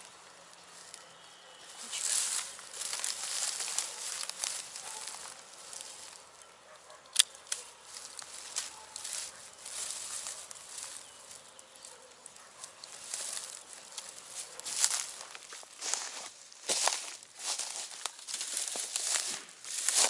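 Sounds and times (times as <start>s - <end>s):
rustling and scraping: 7.5s - 20.0s.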